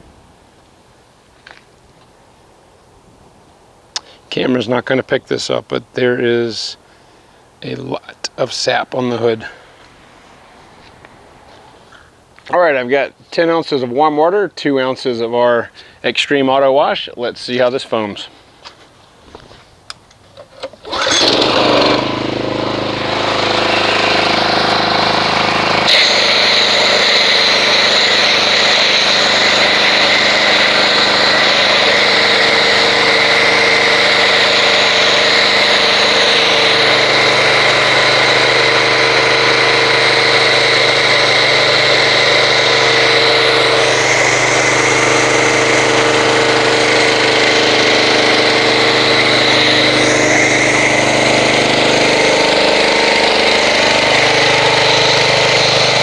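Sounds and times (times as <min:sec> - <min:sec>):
pressure washer hum and hiss: 0:20.8 - 0:56.0.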